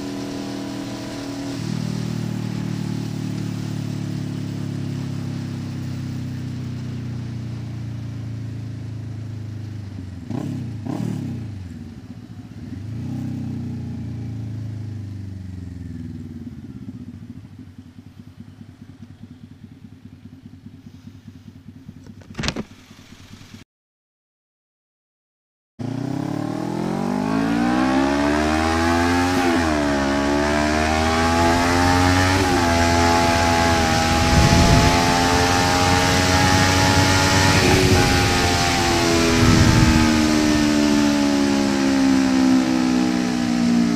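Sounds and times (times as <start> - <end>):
motorcycle engine revving: 0.0 - 23.6, 25.8 - 43.9
exhaust crack: 31.0 - 42.3.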